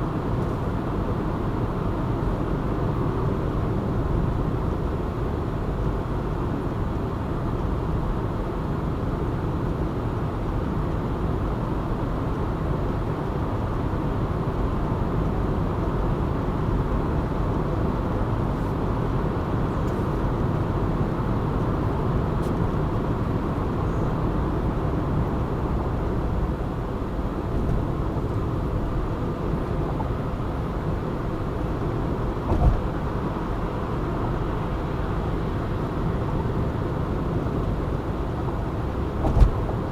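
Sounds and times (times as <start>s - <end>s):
car road and engine noise: 0.0s - 39.9s
short knock: 32.5s - 32.8s, 39.2s - 39.6s.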